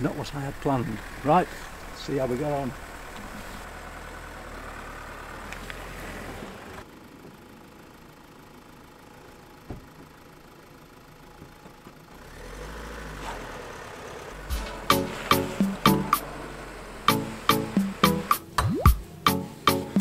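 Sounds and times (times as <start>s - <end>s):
car engine idling: 0.0s - 12.3s, 13.6s - 20.0s
car door shutting: 14.5s - 16.2s.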